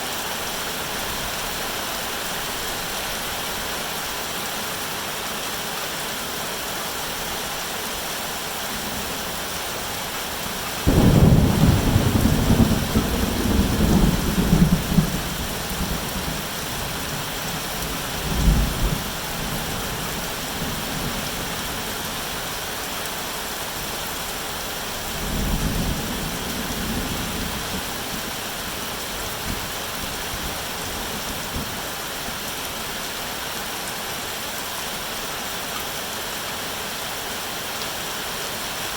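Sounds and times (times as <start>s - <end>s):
steady rain: 0.0s - 38.9s
thunder clap and rumble: 10.8s - 16.5s.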